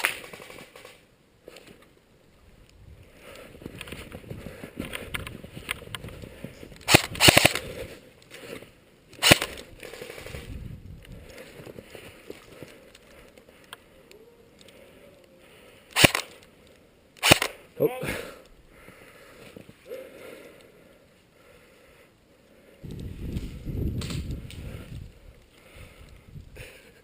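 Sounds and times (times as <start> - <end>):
airsoft guns firing: 0.0 - 1.0, 6.9 - 7.7, 9.2 - 10.4, 15.9 - 16.4, 17.2 - 17.6.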